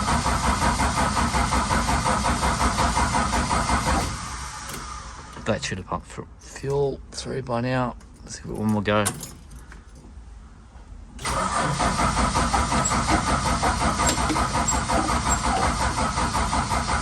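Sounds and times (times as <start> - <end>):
engine cranking on starter motor: 0.0 - 5.5, 11.2 - 17.0.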